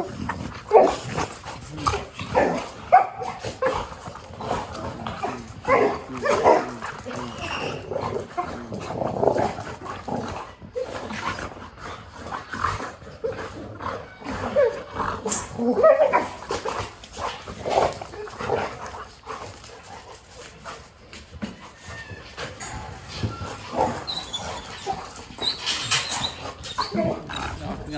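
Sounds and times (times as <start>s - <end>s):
dogs whining and yipping: 2.3s - 16.5s, 21.2s - 27.9s.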